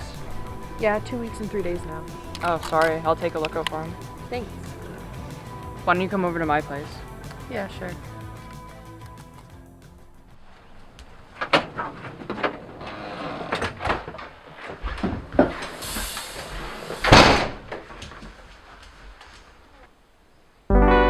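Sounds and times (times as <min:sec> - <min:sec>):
door banging shut: 0:11.4 - 0:18.0.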